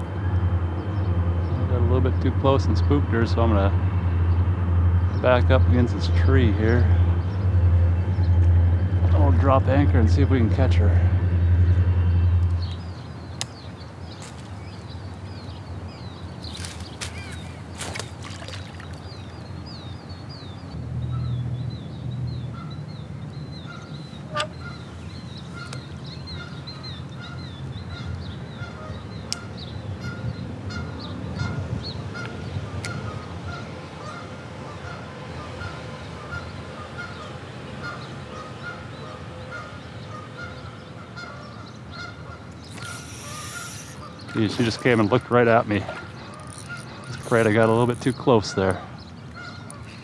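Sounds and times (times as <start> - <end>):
high bird chirping: 11.1 - 33.3, 35.6 - 50.0
bird short repeated call: 42.6 - 45.2.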